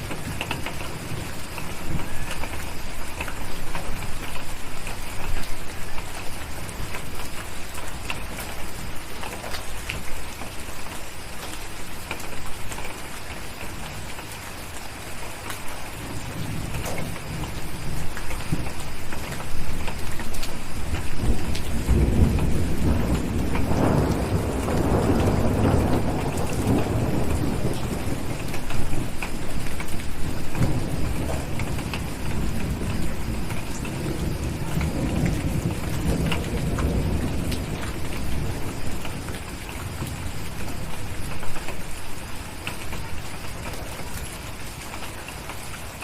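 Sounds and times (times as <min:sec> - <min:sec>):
steady rain: 0:00.0 - 0:46.0
deep roll of thunder: 0:20.8 - 0:41.5.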